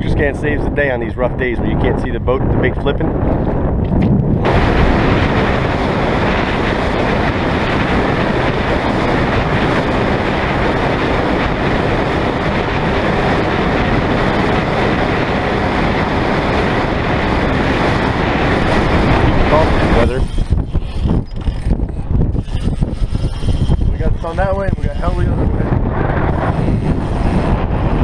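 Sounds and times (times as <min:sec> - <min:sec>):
wind rushing: 0:00.0 - 0:28.0
rough water rushing: 0:04.4 - 0:20.6.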